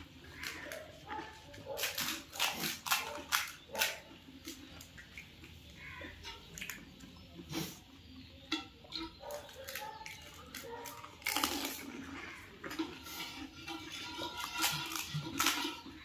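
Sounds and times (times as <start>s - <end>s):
crisp shells crunching: 0.3s - 5.0s, 9.6s - 16.0s
wet slurping and chewing: 8.9s - 16.0s.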